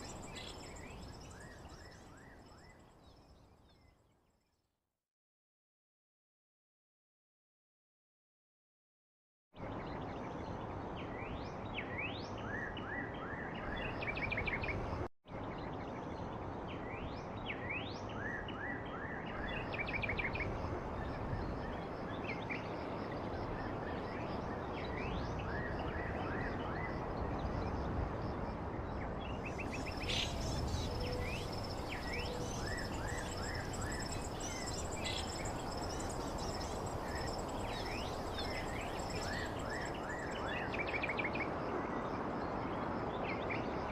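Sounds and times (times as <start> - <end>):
high insect trill: 0.0 - 2.1, 29.6 - 40.4
small birds chirping: 0.0 - 4.0, 29.3 - 41.2.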